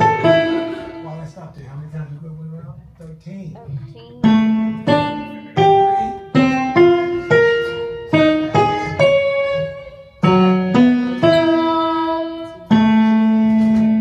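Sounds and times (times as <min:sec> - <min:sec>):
piano single notes: 0:00.0 - 0:01.4, 0:04.0 - 0:14.0.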